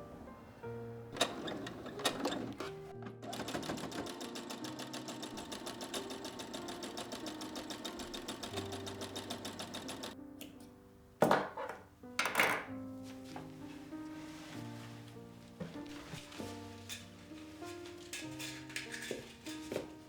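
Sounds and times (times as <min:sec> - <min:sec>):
sewing machine stitching: 0:01.1 - 0:10.2.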